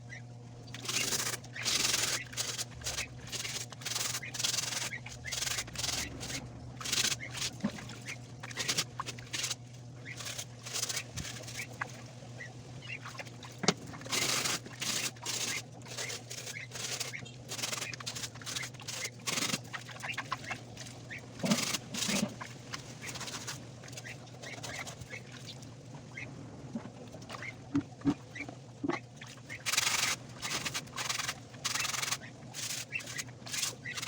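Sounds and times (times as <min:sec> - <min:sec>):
birds calling: 0:00.0 - 0:13.6, 0:14.2 - 0:26.3
low steady hum: 0:00.0 - 0:34.0.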